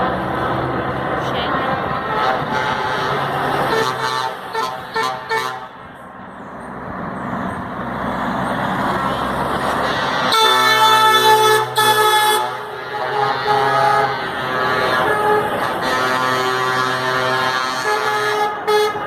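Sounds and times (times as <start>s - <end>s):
trucks driving past: 0.0s - 19.0s
lorry air horn blasting: 2.1s - 5.8s, 10.2s - 19.0s.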